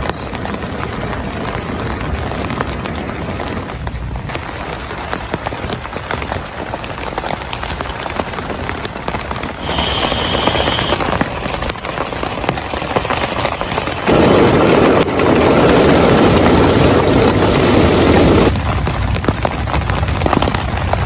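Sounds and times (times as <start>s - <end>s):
heavy rain on a surface: 0.0s - 21.0s.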